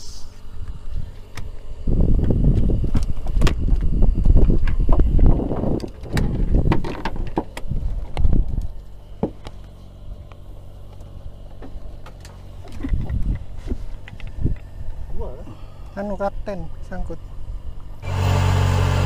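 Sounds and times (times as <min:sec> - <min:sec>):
boat machinery hum: 0:00.0 - 0:19.0.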